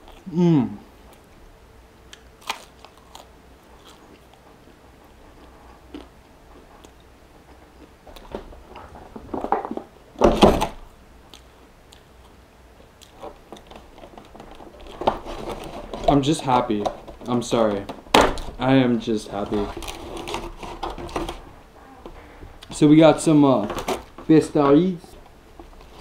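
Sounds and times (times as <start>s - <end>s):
chewing with wet clicks: 2.1s - 8.3s, 11.3s - 13.8s.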